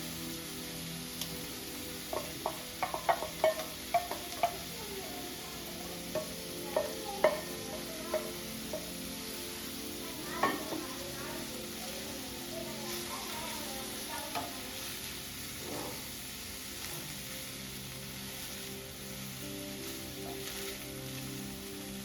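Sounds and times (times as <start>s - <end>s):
faint hiss: 0.0s - 22.0s
utensil clinking against metal pan: 2.1s - 4.7s, 6.1s - 8.9s, 10.4s - 10.8s.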